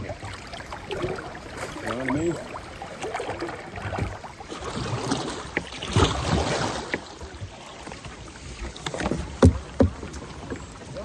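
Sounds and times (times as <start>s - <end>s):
water splashing around kayak: 0.0s - 11.0s
light knocks: 8.8s - 10.2s.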